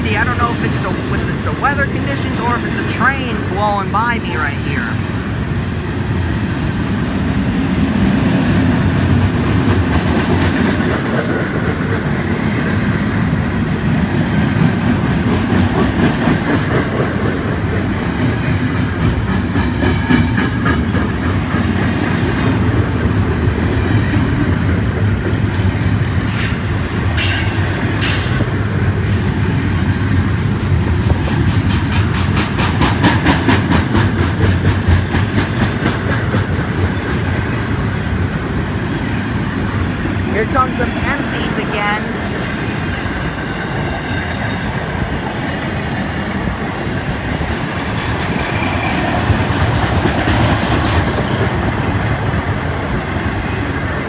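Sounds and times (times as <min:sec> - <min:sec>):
train wheels rumbling on rail: 0:00.0 - 0:54.0
wheels clicking over rail joints: 0:14.6 - 0:39.3.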